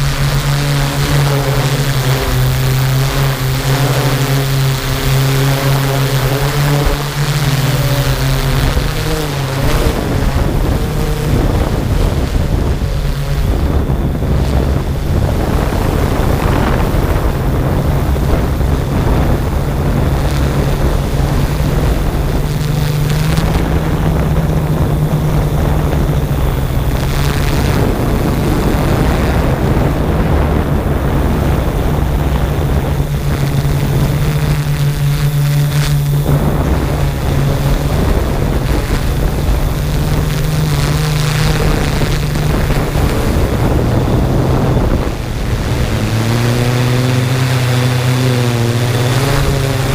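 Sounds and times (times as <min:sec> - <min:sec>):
drone propellers humming: 0:00.0 - 0:49.9
wind noise on microphone: 0:00.0 - 0:49.9.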